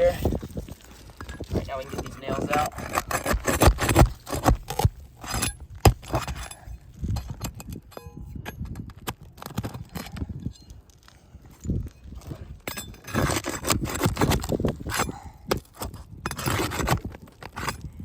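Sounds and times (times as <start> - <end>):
metal tool prying nails: 2.0 - 10.7, 12.2 - 17.9
short metallic ring: 7.9 - 8.6.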